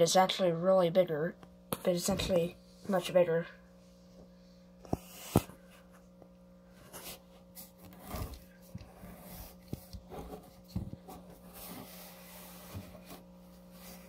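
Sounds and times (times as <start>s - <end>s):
faint steady hum: 0.0s - 14.0s
plastic knocking and rubbing: 7.8s - 11.9s.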